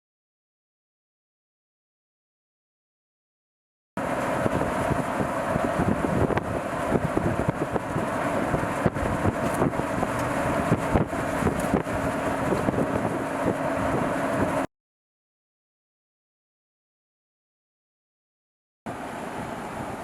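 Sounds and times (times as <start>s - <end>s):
vehicle road noise: 4.0s - 14.7s, 18.9s - 20.0s
wind buffeting microphone: 4.0s - 14.7s.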